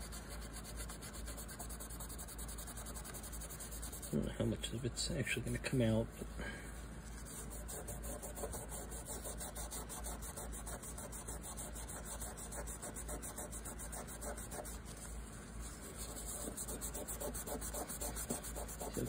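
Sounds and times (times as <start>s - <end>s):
scouring pad scrubbing metal: 15.8s - 19.0s.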